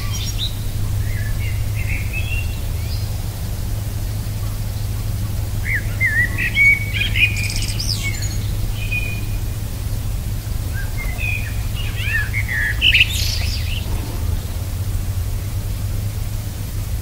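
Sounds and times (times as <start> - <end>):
low rumble: 0.0 - 17.0
small birds chirping and whistling: 5.6 - 9.6, 10.6 - 14.6.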